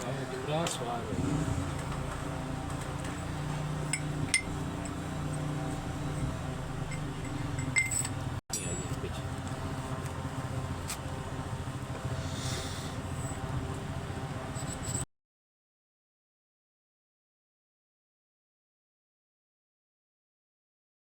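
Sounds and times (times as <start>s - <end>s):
steady low hum: 0.0s - 15.0s
metallic tool clinks: 6.9s - 8.2s.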